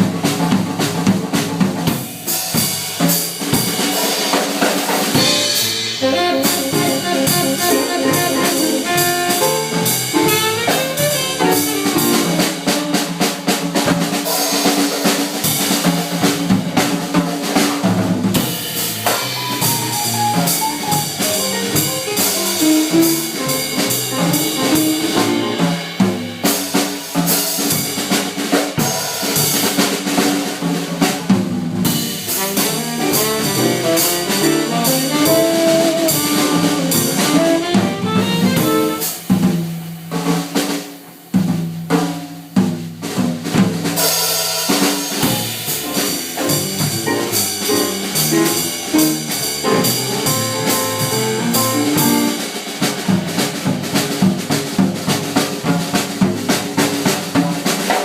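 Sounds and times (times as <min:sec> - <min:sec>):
drum kit: 0:00.0 - 0:58.0
jazz band playing live: 0:00.0 - 0:58.0.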